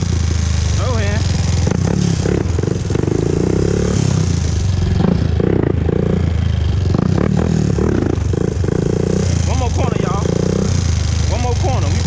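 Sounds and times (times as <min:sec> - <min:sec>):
atv engine revving: 0:00.0 - 0:12.0.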